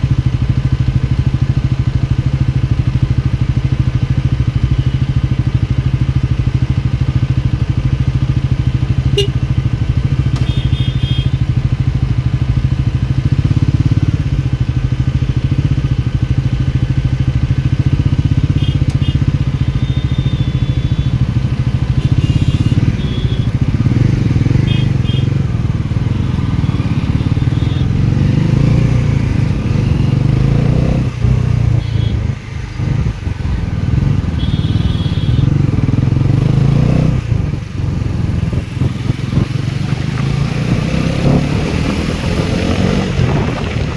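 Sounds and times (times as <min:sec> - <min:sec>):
motorcycle engine running: 0:00.0 - 0:43.9
short high beeps: 0:19.6 - 0:21.3.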